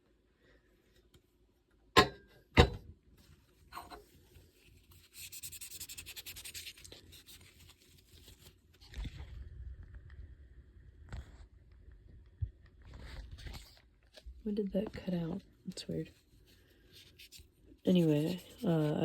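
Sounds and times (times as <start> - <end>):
dry rubbing and scratching: 16.8 - 19.0.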